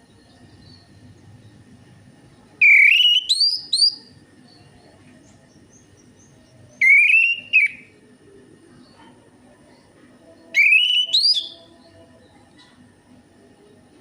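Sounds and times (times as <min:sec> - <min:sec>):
thrush singing whistled phrases: 0:02.6 - 0:04.0, 0:06.8 - 0:07.9, 0:10.5 - 0:11.7.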